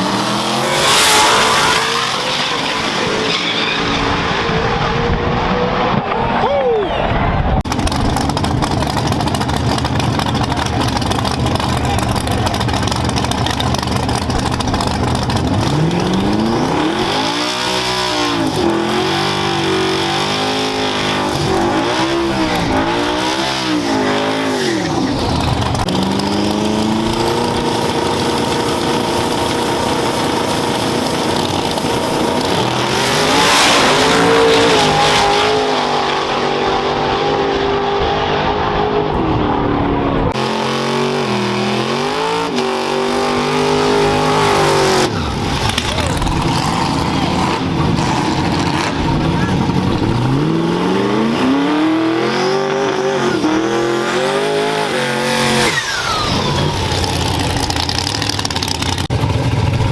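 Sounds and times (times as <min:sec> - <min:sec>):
race truck engine revving: 0:00.0 - 0:59.8.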